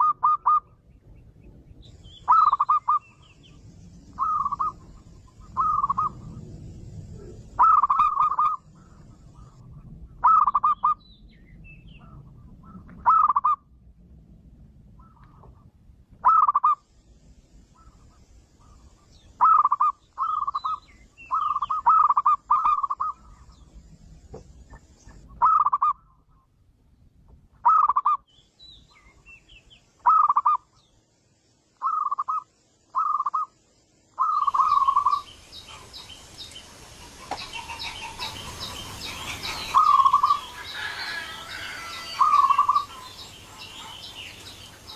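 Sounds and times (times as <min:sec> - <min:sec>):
dove cooing: 0:00.0 - 0:00.7, 0:02.3 - 0:03.1, 0:04.2 - 0:06.4, 0:07.1 - 0:09.6, 0:10.2 - 0:11.0, 0:12.1 - 0:13.6, 0:16.2 - 0:16.8, 0:19.4 - 0:23.4, 0:25.4 - 0:26.0, 0:30.0 - 0:30.6, 0:33.0 - 0:33.5, 0:34.2 - 0:36.0, 0:37.1 - 0:44.9.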